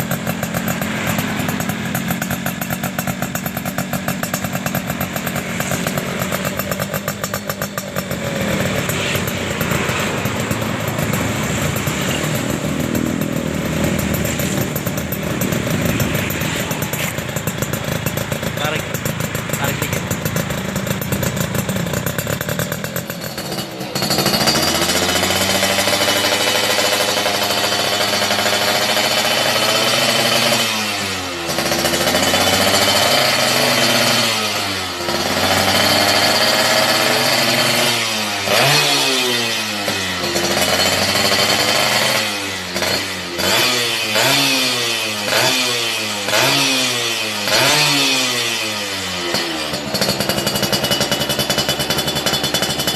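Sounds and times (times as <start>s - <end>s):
two-stroke engine revving: 0.0s - 52.9s.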